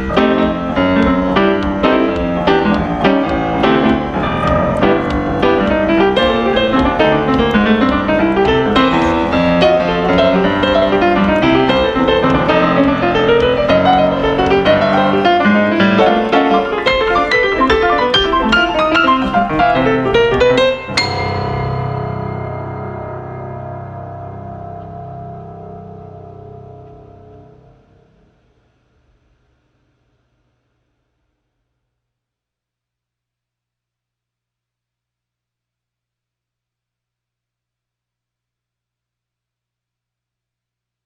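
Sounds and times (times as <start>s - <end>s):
piano playing fast passage: 0.0s - 28.0s
ringing piano chord: 0.0s - 28.0s.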